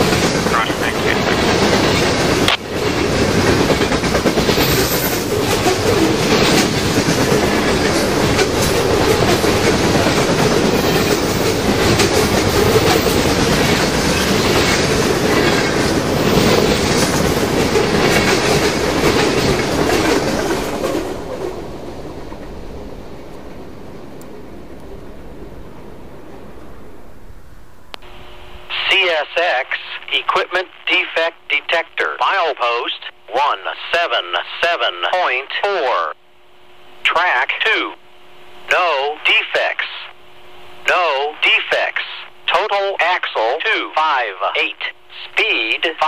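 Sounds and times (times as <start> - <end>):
freight train wheels clattering: 0.0 - 21.5.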